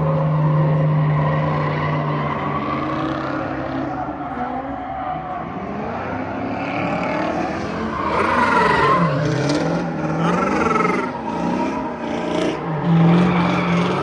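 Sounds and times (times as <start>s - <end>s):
tire squeal: 0.0s - 14.0s
car engine revving hard: 5.7s - 14.0s.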